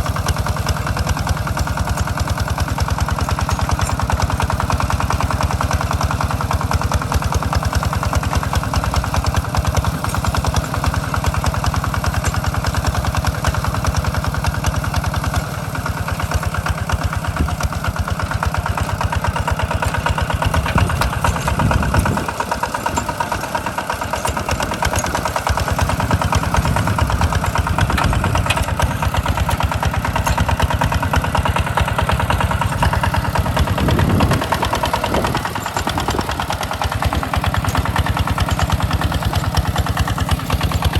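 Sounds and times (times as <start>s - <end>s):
hand tractor engine running: 0.0s - 40.9s.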